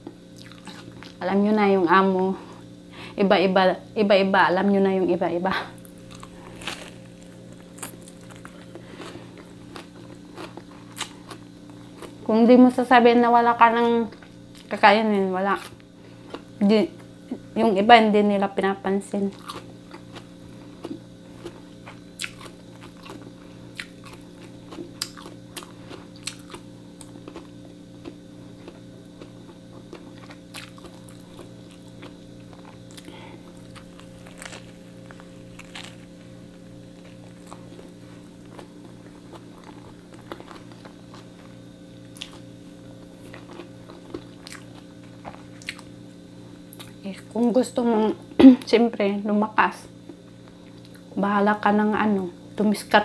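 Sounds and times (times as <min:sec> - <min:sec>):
steady low hum: 0:00.0 - 0:53.0
chewing and biting toasted sandwich: 0:00.3 - 0:01.2, 0:05.8 - 0:12.3, 0:19.3 - 0:47.0.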